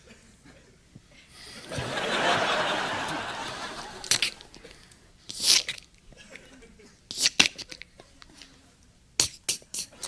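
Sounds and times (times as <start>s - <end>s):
studio audience laughing: 1.6s - 4.6s.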